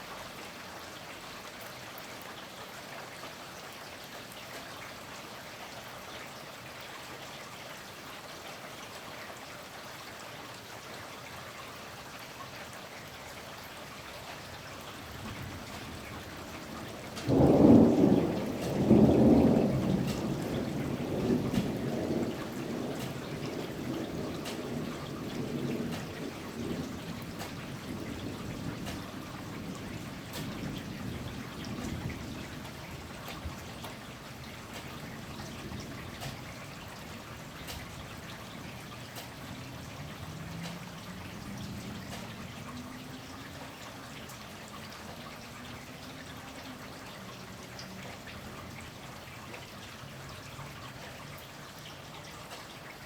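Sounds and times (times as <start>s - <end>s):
steady rain: 0.0s - 53.0s
water drips: 0.0s - 53.0s
distant thunder rumble: 15.0s - 42.8s.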